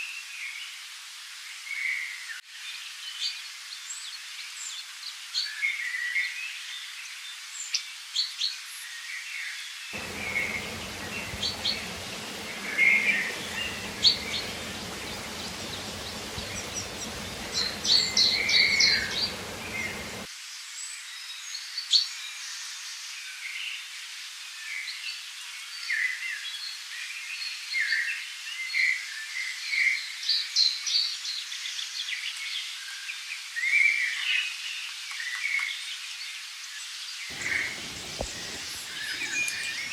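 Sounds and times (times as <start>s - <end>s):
flowing water hiss: 10.0s - 20.3s, 37.3s - 39.9s
small birds chirping: 10.0s - 20.3s, 37.3s - 39.9s.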